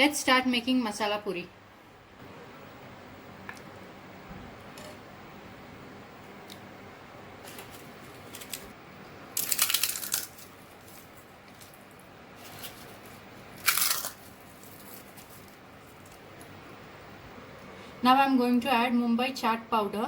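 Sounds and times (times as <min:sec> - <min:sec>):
fried bread crunching: 0:07.4 - 0:16.6.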